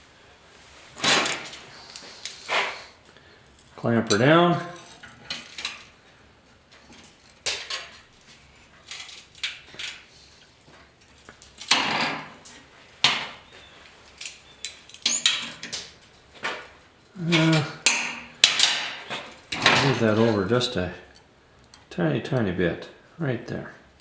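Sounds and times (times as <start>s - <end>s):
metal pieces clinking on bench: 14.1s - 16.0s.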